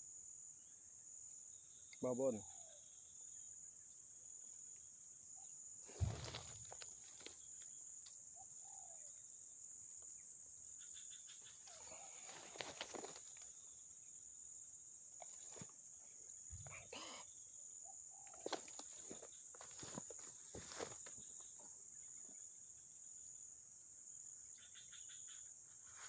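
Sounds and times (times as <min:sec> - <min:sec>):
thump: 0:05.9 - 0:06.8.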